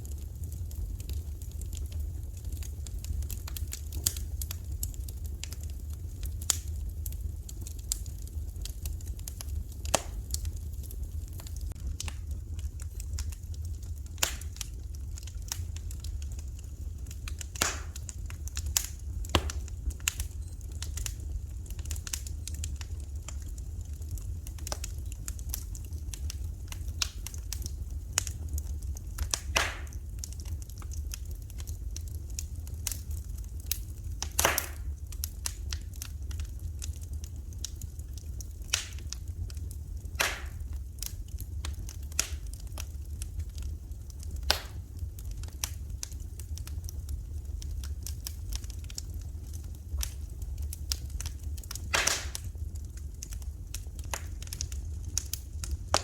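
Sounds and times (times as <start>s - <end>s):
fire crackling in a fireplace: 0.0s - 56.0s.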